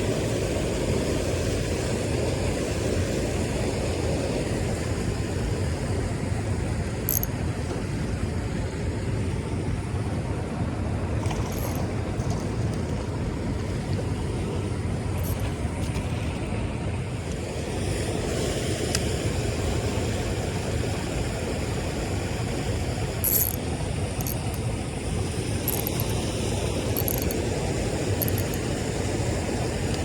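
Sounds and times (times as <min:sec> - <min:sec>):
faint high ticks: 0:27.0 - 0:27.4, 0:28.2 - 0:28.6.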